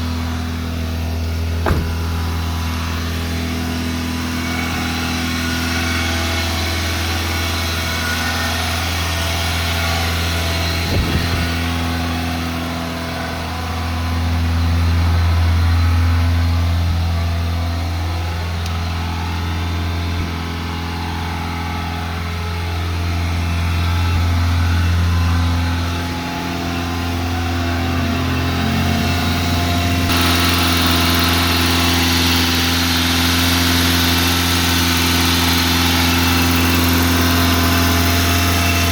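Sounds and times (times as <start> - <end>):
car engine fast idle: 0.2 - 3.2, 29.2 - 38.9.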